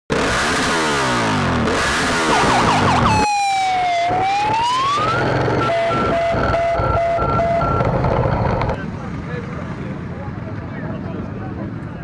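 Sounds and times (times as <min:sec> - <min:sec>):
synthesized siren sweeps: 0:02.1 - 0:08.8
pure tone dipping and rising: 0:02.2 - 0:08.1.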